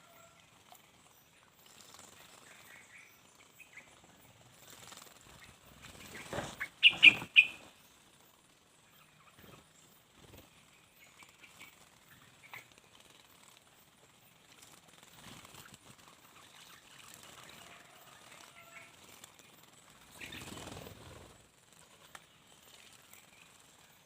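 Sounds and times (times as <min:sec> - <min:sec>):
faint high bird chirps: 0:00.0 - 0:08.0, 0:08.8 - 0:21.3
bird wings flapping and splashing: 0:04.5 - 0:07.6, 0:14.3 - 0:23.6.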